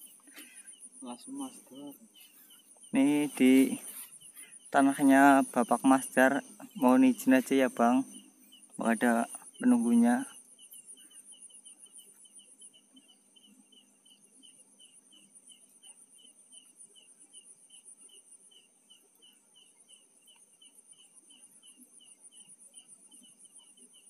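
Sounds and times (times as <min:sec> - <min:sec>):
insect chirping: 0:00.0 - 0:24.0
insects trilling: 0:00.0 - 0:24.0.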